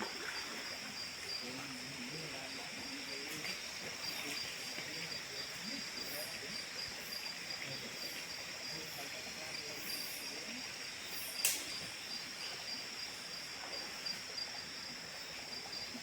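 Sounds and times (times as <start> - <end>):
insects chirping trill: 0.0 - 16.0
sharp click: 11.4 - 11.7.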